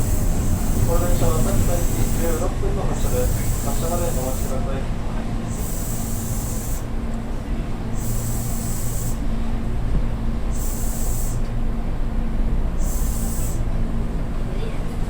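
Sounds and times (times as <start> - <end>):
electric train running: 0.0 - 7.0, 7.9 - 9.3, 10.5 - 11.4, 12.8 - 13.7.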